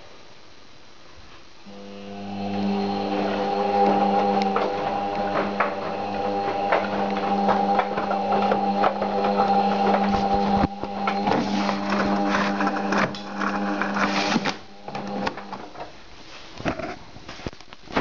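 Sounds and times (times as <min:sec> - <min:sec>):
washing machine motor hum: 0:01.6 - 0:16.0.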